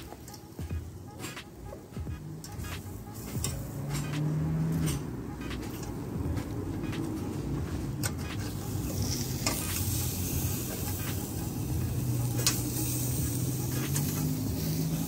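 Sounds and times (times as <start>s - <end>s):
metal tongs clicking on grill wires: 0.0s - 0.6s, 8.0s - 11.0s, 12.1s - 15.0s
chicken sizzling on a grill: 8.4s - 15.0s.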